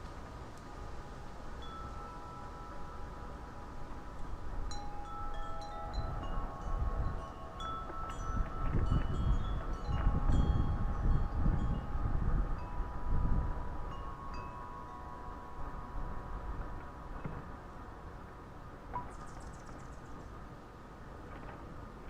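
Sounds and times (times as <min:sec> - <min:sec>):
wind rumbling on microphone: 0:00.0 - 0:22.0
wind chimes ringing: 0:00.6 - 0:17.8.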